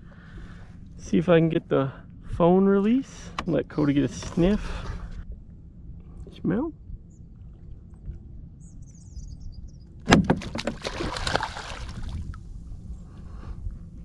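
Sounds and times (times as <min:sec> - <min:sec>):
wind rumble on microphone: 0:00.0 - 0:14.0
faint bird chirping: 0:08.6 - 0:10.0
water rushing and splashing: 0:10.4 - 0:12.2.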